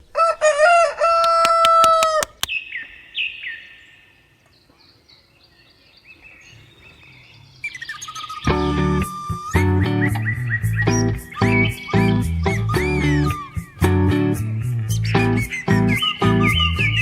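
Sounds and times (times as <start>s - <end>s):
rooster crowing: 0.0s - 2.4s
faint bird chirps: 2.4s - 13.9s
music: 8.4s - 17.0s.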